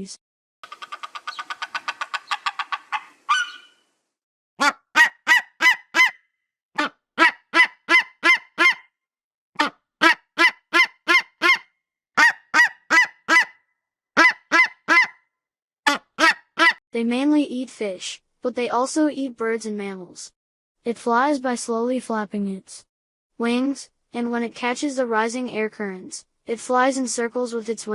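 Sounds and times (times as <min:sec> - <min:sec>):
eagle calling: 0:00.6 - 0:03.9, 0:04.6 - 0:06.2, 0:06.8 - 0:08.9, 0:09.6 - 0:11.6, 0:12.2 - 0:13.6, 0:14.2 - 0:15.2, 0:15.9 - 0:16.8.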